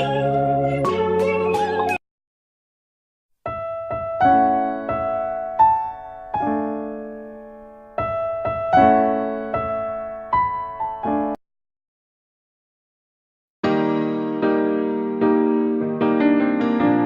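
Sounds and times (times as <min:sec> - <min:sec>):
slow piano music: 0:00.0 - 0:02.0, 0:03.4 - 0:11.4, 0:13.6 - 0:17.0.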